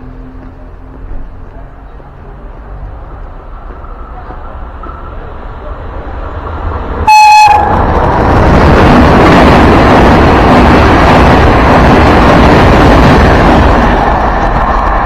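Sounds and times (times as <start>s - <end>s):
passenger train passing at speed: 0.0s - 15.0s
wind buffeting microphone: 6.2s - 15.0s
locomotive horn blast: 7.0s - 7.9s.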